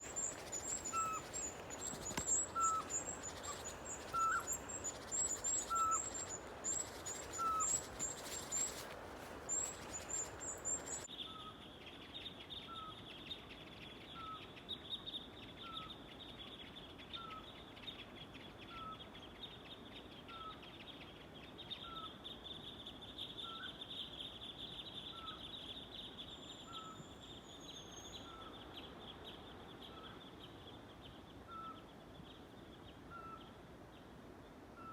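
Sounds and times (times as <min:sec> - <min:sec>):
steady high hiss: 0:00.0 - 0:11.1
tits calling: 0:00.0 - 0:11.1
owl whistled notes: 0:00.1 - 0:08.8.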